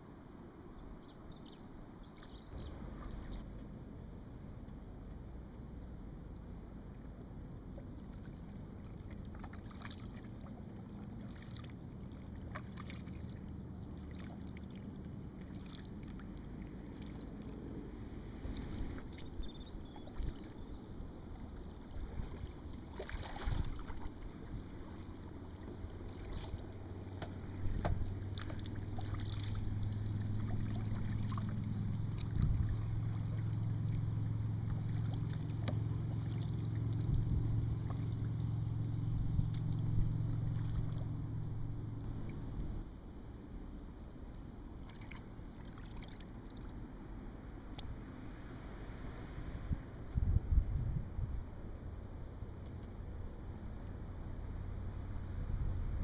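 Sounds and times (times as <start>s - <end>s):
low steady hum: 0.0s - 56.0s
paddle splashes and drips: 2.0s - 3.6s, 6.7s - 42.9s, 43.8s - 49.2s, 52.0s - 56.0s.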